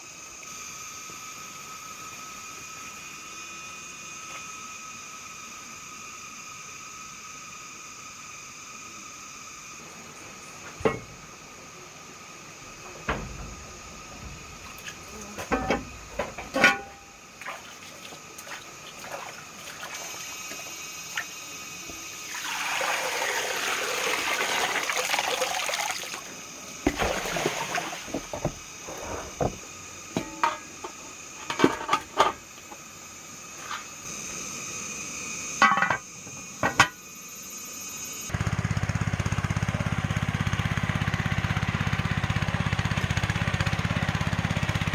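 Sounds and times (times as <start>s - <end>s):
water rushing and pouring: 22.2s - 28.5s
small engine running: 38.3s - 44.9s.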